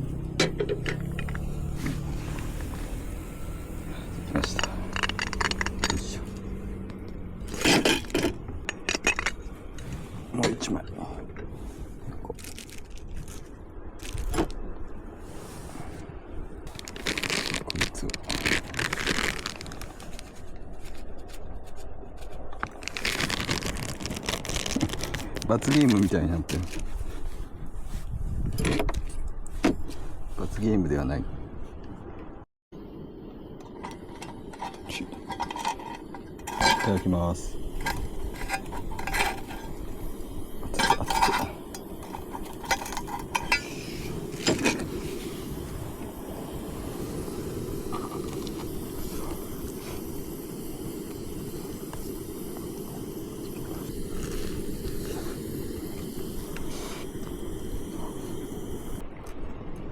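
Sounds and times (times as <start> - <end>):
crinkling and scraping handling noises: 3.9 - 14.6, 16.7 - 30.6, 33.6 - 46.3
utensils scraping a dish: 4.2 - 6.3, 33.7 - 45.3.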